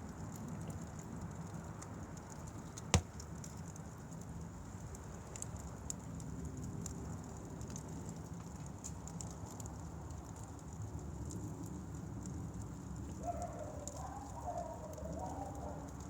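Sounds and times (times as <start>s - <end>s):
fire crackles: 0.0s - 16.0s
wood fire rustling: 1.0s - 16.0s
loud sharp pop: 3.0s - 3.2s.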